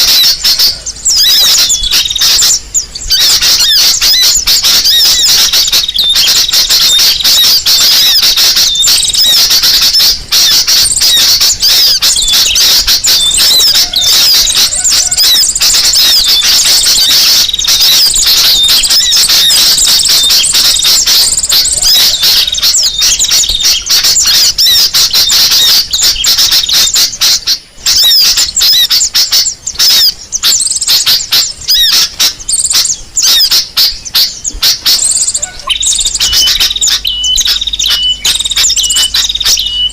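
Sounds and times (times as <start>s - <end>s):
sunbird chirping and twittering: 0.0s - 39.9s.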